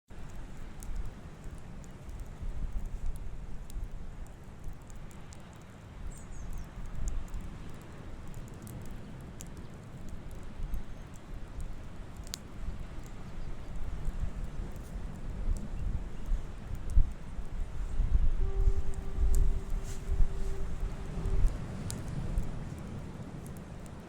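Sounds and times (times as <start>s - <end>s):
campfire crackling: 0.1s - 24.0s
low rumble: 15.5s - 23.1s.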